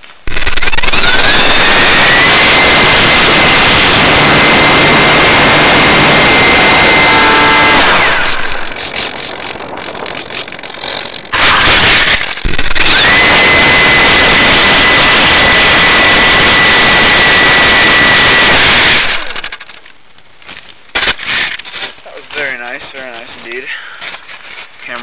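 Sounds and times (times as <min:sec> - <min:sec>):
model airplane motor whine: 0:00.3 - 0:19.9.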